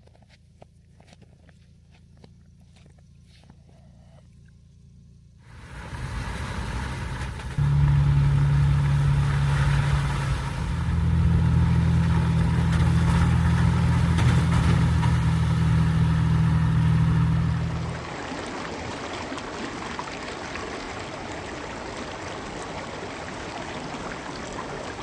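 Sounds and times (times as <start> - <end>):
car engine humming: 1.7 - 18.1.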